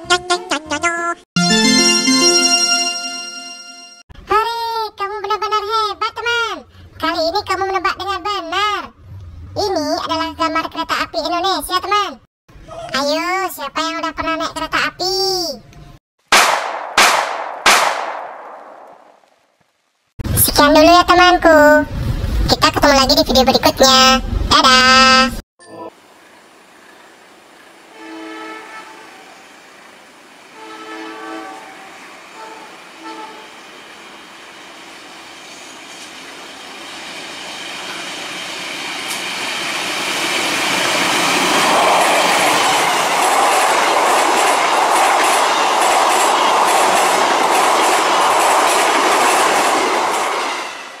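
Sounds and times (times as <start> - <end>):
train rumble and wheel clatter: 27.4 - 51.0
train horn blasts: 27.9 - 29.4, 30.5 - 33.5.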